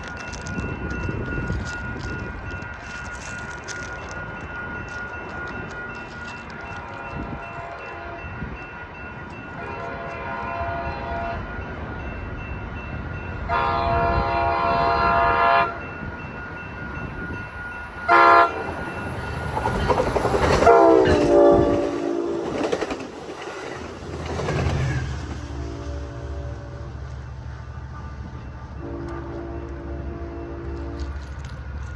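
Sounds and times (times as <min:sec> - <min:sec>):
train rumble and clatter: 0:00.0 - 0:31.9
train horn blasts: 0:09.6 - 0:11.6, 0:13.4 - 0:15.9, 0:18.1 - 0:18.9, 0:20.6 - 0:22.7, 0:28.0 - 0:31.4.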